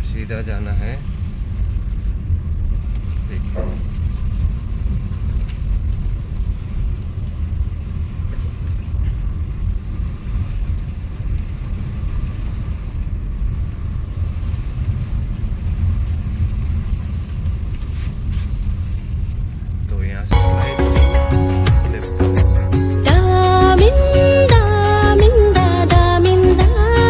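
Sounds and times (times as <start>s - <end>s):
vehicle driving on road: 0.0s - 19.9s.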